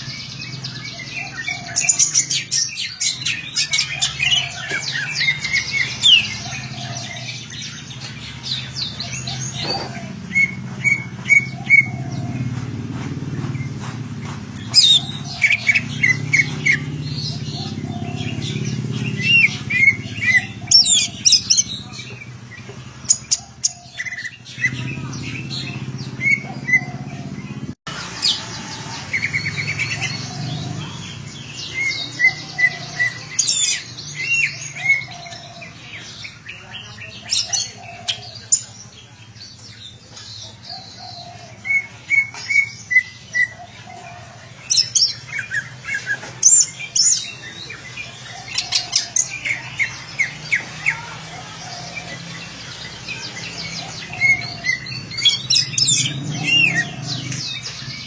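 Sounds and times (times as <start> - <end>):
bird chirping and whistling: 0.0 - 12.5, 14.6 - 27.6, 44.7 - 51.0, 51.8 - 58.0.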